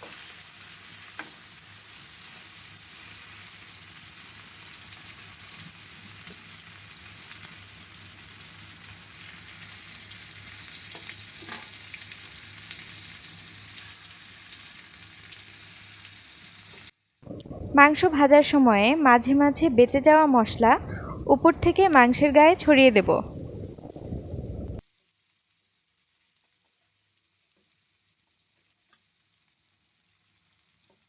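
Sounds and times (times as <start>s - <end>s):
chicken sizzling in oil: 0.0s - 17.2s, 23.6s - 31.0s.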